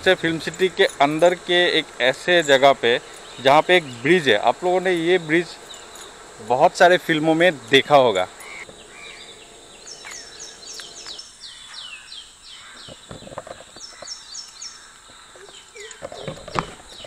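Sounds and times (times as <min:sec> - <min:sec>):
faint insect hum: 0:00.0 - 0:17.0
bird singing high chirps: 0:02.4 - 0:06.2, 0:07.6 - 0:17.0.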